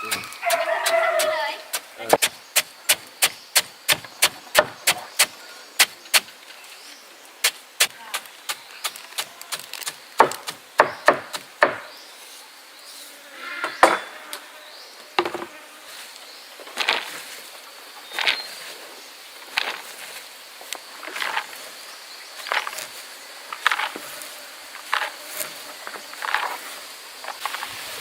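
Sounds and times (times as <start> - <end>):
sharp knocks: 10.2 - 11.9.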